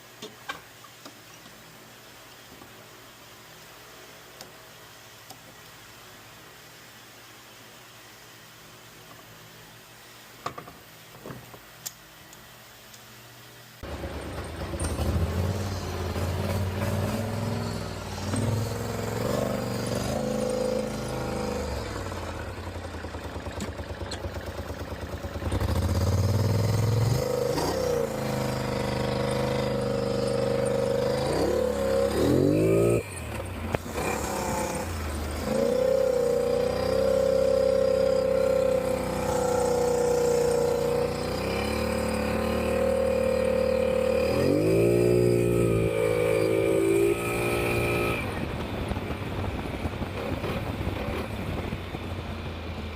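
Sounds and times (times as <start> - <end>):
atv engine revving: 13.8 - 52.9.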